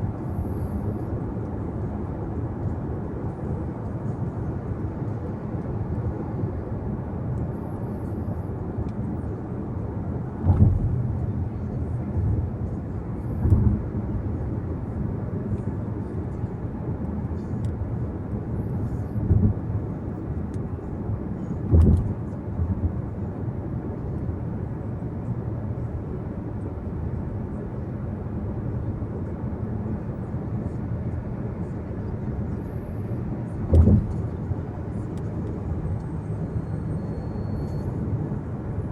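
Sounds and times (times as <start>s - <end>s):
car road noise rumble: 0.0s - 27.4s, 28.0s - 38.9s
short low thumps: 33.7s - 34.2s.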